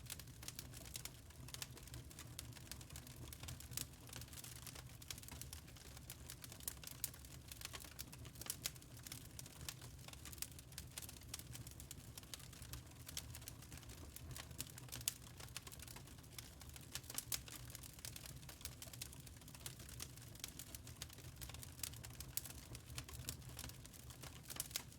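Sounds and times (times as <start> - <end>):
low steady fire rumble: 0.0 - 24.9
wood fire crackling and popping: 0.0 - 24.9.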